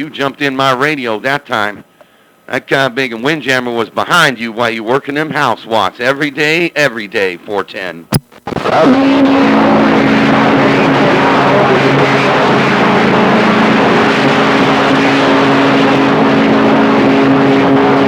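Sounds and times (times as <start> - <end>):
droning radio tones: 7.4 - 18.0
radio static: 8.1 - 18.0.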